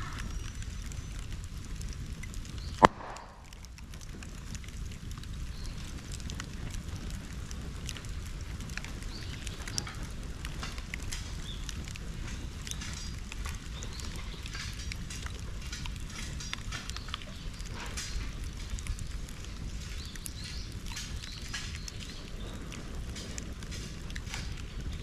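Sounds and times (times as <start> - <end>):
bonfire crackling and popping: 0.0 - 25.0
low fire rumble: 0.0 - 25.0.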